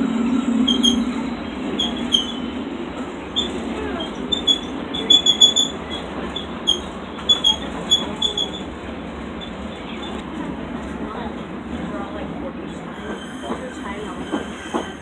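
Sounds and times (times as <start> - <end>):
train rumbling on track: 0.0 - 15.0
high-pitched wheel squeaks: 13.0 - 15.0.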